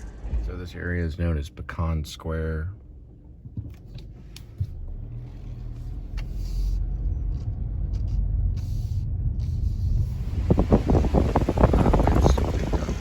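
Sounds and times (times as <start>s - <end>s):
car engine rumble: 0.0s - 13.0s
road noise: 3.6s - 13.0s
wind buffeting microphone: 9.7s - 13.0s.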